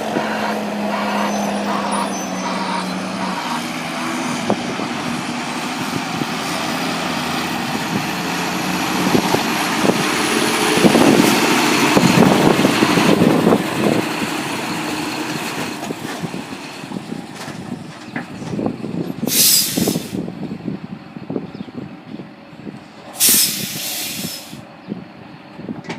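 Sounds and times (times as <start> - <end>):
heavy diesel farm machinery running: 0.0 - 25.9
air brake hiss: 19.3 - 20.3, 23.2 - 24.6.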